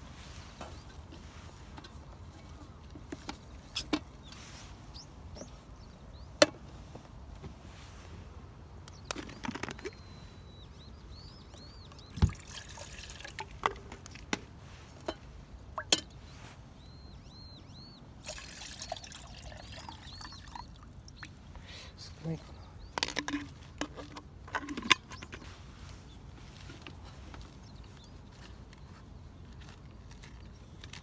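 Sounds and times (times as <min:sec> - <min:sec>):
low steady background noise: 0:00.0 - 0:31.0
bird chirping: 0:08.8 - 0:12.6, 0:16.1 - 0:18.1, 0:18.9 - 0:23.0.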